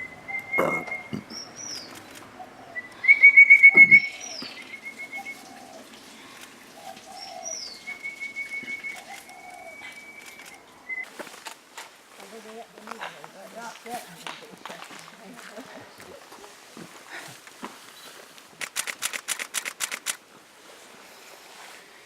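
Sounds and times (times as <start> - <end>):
bird trilling: 0.0 - 5.6, 6.9 - 11.1
short low bird calls: 0.0 - 5.9, 6.8 - 11.1.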